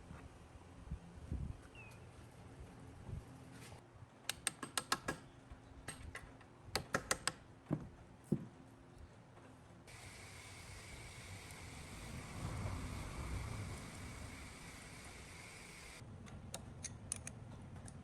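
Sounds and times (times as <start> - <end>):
steady hiss: 9.9 - 16.0.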